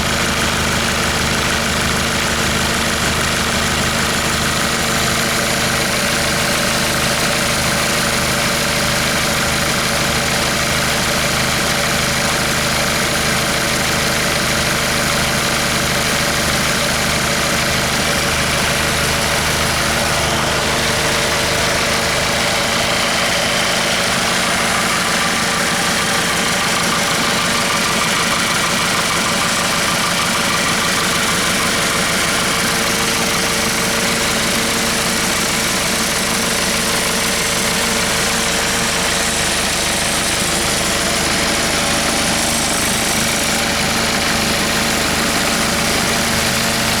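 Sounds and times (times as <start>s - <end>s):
diesel engine idling: 0.0s - 47.0s.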